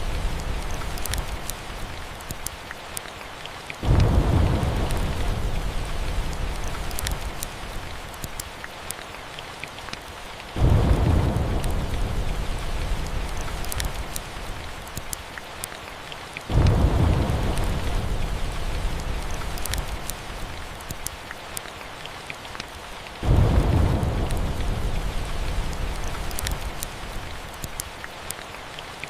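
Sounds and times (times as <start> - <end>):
fireplace crackling: 0.0 - 2.6, 3.8 - 8.6, 16.5 - 21.2, 23.3 - 28.0
steady rain: 0.0 - 29.0
thunder rolling: 3.8 - 7.4, 10.6 - 14.5, 16.5 - 20.0, 23.2 - 26.8.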